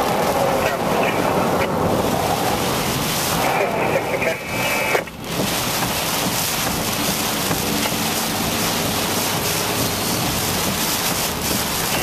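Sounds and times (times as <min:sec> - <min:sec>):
wind and rain rushing: 0:00.0 - 0:12.0.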